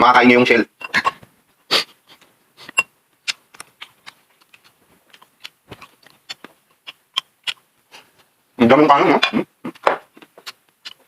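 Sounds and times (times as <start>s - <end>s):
chewing crunchy food: 2.6s - 8.3s, 9.6s - 11.0s.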